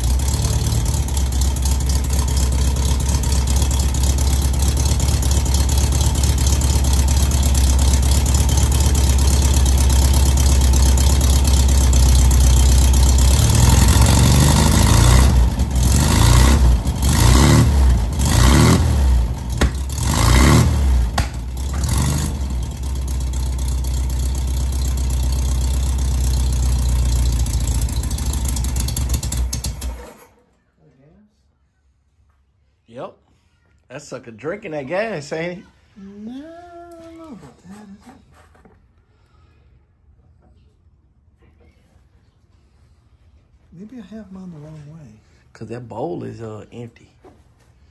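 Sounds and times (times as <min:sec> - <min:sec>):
car engine idling: 0:00.0 - 0:30.0
engine revving: 0:00.0 - 0:30.2.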